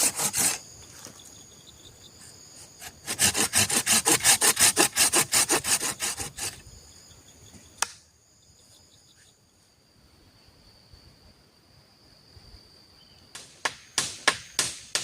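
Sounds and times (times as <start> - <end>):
hand saw cutting wood: 0.0 - 0.6, 2.8 - 6.6
insects buzzing: 0.0 - 15.0
sharp click: 7.8 - 8.0.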